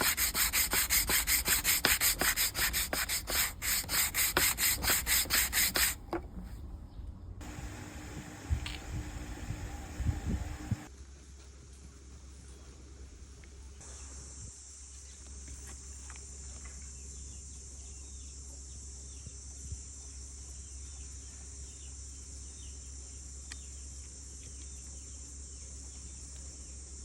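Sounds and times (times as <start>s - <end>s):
low outdoor rumble: 6.1s - 10.9s
insects droning buzz: 7.4s - 10.9s.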